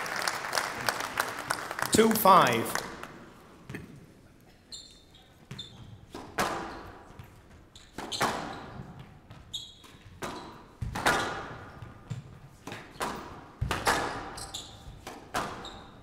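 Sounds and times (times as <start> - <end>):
shoes squeaking on court floor: 3.6 - 16.0
squash ball impacts: 5.4 - 16.0.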